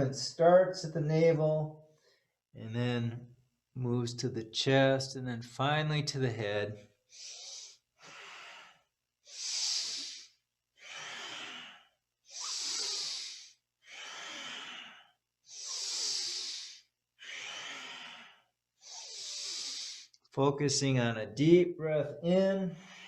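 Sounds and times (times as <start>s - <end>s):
person breathing through the nose: 7.1s - 20.2s, 22.8s - 23.0s.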